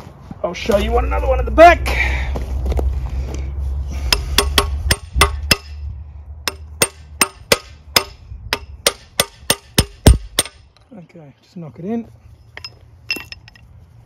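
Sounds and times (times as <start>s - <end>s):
hammer knocking on metal bar: 4.1s - 5.8s.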